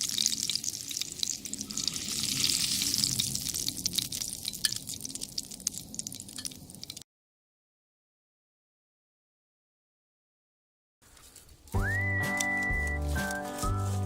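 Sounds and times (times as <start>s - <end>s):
pork sizzling in a skillet: 0.0s - 7.0s.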